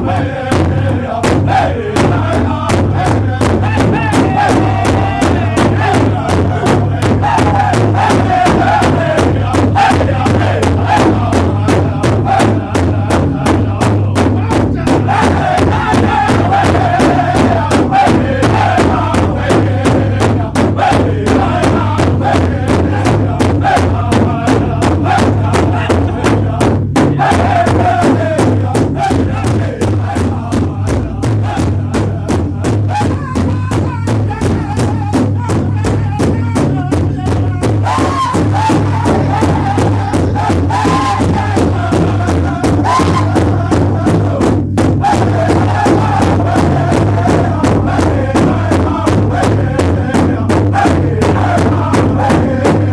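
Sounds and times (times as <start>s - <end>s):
drums and percussion beat: 0.0s - 52.9s
voices chanting: 0.0s - 52.9s.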